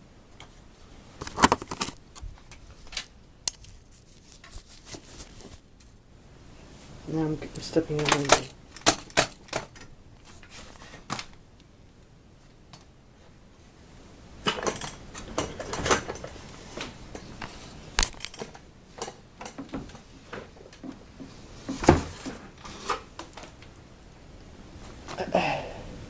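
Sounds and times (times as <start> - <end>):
rustling: 0.4 - 6.0, 10.2 - 11.4.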